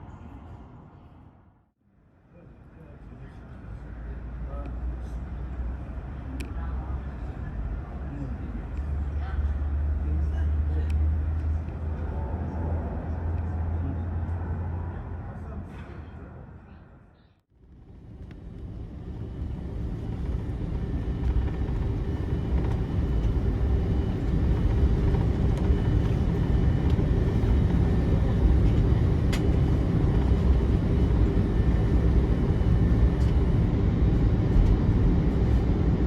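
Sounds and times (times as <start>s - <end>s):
aircraft cabin rumble and hiss: 17.7s - 36.0s.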